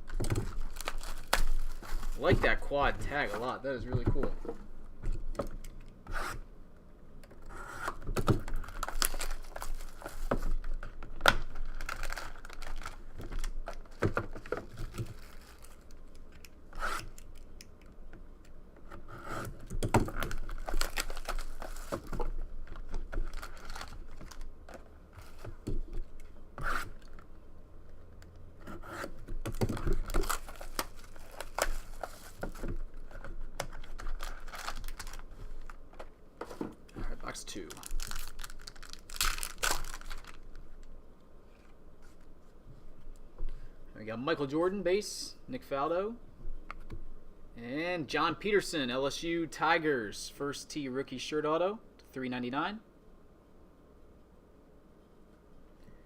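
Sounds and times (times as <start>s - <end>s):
plastic wrap tearing and crinkling: 0.0s - 3.3s, 8.3s - 16.4s, 20.0s - 25.5s, 29.1s - 35.8s, 37.3s - 41.0s.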